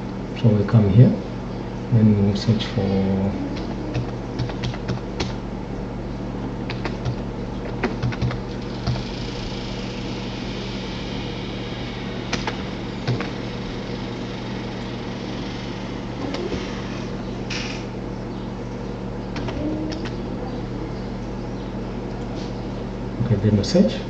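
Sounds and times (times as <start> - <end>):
fan humming: 0.0 - 24.0
keyboard and mouse clicks: 3.6 - 5.4, 6.7 - 9.0.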